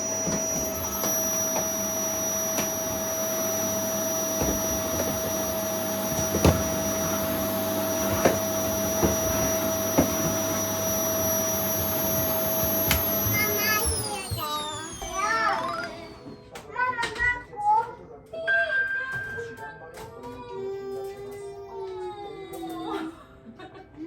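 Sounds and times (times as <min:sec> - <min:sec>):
vacuum cleaner knocking: 0:00.0 - 0:16.4
vacuum cleaner running: 0:00.0 - 0:16.6.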